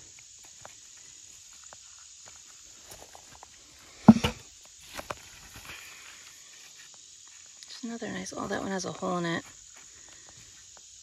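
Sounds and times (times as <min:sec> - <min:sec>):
insects chirring: 0:00.0 - 0:11.0
loud thud: 0:04.1 - 0:04.4
small knock: 0:04.1 - 0:04.4.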